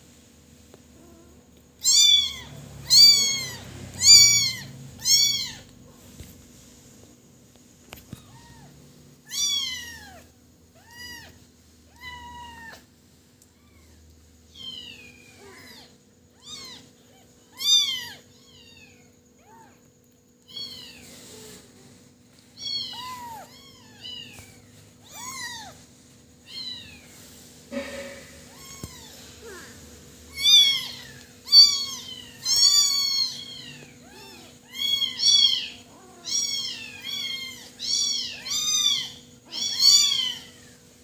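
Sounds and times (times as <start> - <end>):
kitten meowing: 1.8 - 5.7, 30.3 - 40.7.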